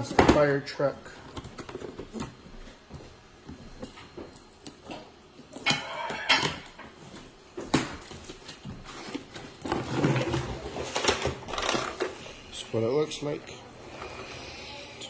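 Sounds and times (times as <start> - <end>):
packaging rustling: 7.8 - 12.4
plastic toys clicking and knocking: 9.6 - 12.2.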